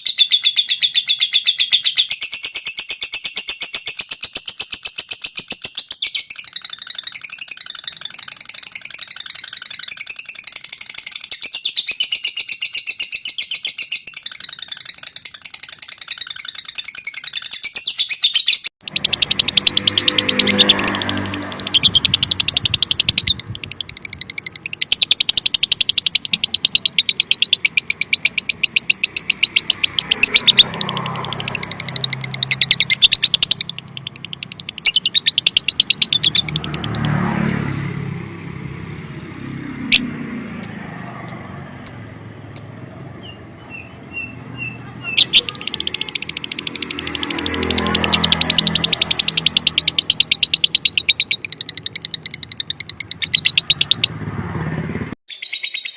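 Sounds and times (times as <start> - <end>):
lovebird chattering trill: 0.0 - 39.2, 39.8 - 55.9
sharp clicks: 3.9 - 11.7, 18.8 - 37.5, 45.2 - 54.2.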